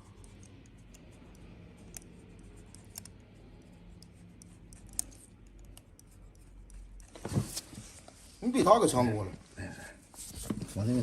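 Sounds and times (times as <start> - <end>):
pedicure tools clicking and scraping: 0.0 - 7.6
steady low hum: 0.0 - 8.4.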